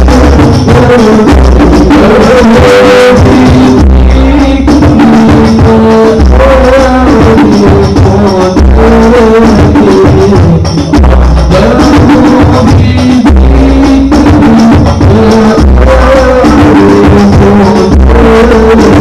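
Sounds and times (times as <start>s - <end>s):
deep low beat: 0.0s - 19.0s
frame drums: 0.0s - 19.0s
person singing melody: 0.0s - 19.0s
shakers: 0.0s - 19.0s.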